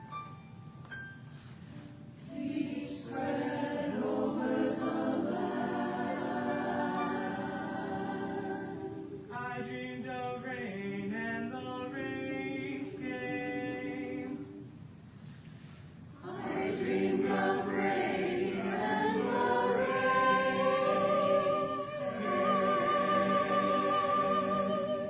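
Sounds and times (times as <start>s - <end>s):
choir singing held chords: 2.2s - 9.4s, 12.0s - 14.8s, 16.2s - 25.0s.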